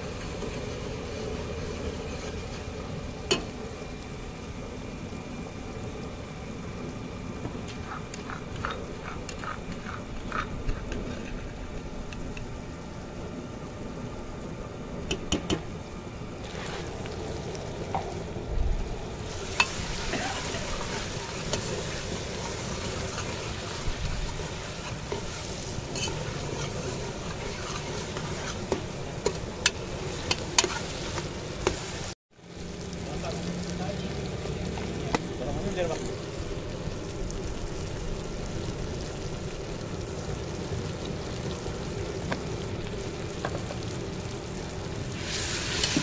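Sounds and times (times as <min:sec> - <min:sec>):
vegetables sizzling in a pot: 0:00.0 - 0:46.0.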